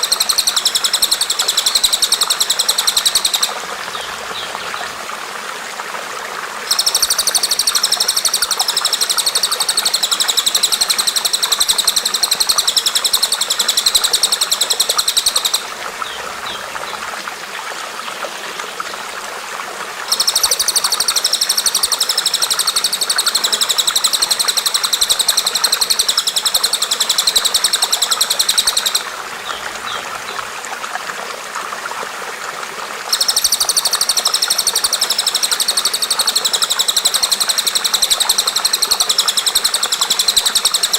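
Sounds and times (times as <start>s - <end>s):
songbird buzzy trill: 6.7s - 16.6s, 20.1s - 30.1s.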